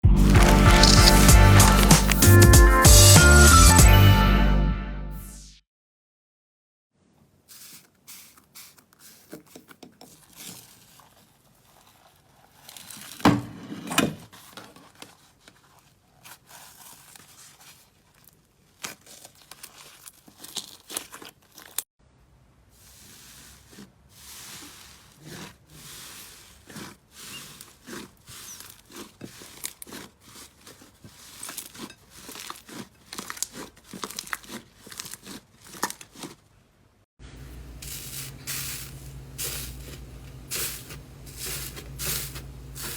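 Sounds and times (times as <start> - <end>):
slime crackling and popping: 0.2 - 2.3, 27.8 - 36.4.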